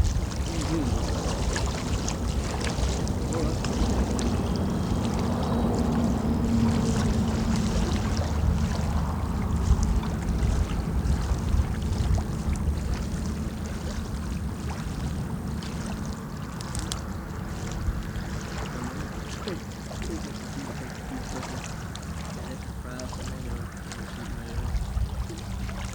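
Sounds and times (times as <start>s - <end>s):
water lapping: 0.0s - 25.9s
wind buffeting microphone: 0.0s - 25.9s
small ticks: 16.5s - 17.1s.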